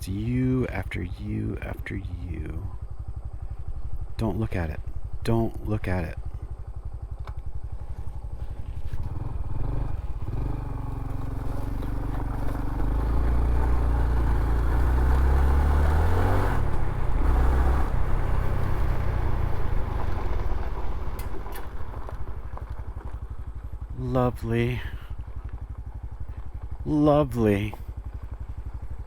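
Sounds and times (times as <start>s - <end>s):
wind and road noise: 0.0s - 29.0s
motorcycle engine shifting gears: 6.2s - 24.0s, 25.0s - 29.0s.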